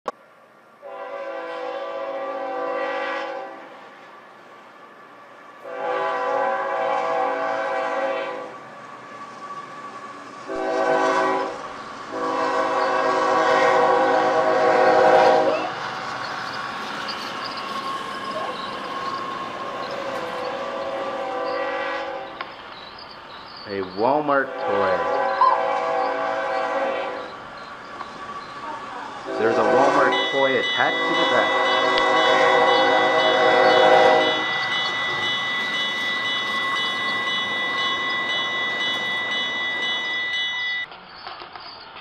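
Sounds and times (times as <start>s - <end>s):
train rumbling past: 0.1s - 42.0s
locomotive air horn: 0.8s - 3.7s, 5.6s - 8.6s, 10.5s - 15.7s, 20.0s - 22.4s, 24.5s - 27.3s, 29.2s - 37.1s.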